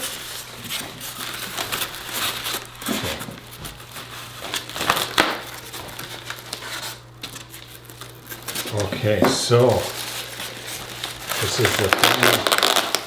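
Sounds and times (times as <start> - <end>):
packing material crinkling: 0.0 - 13.0
rustling and scraping: 0.0 - 13.0
sharp crackles: 9.5 - 13.0.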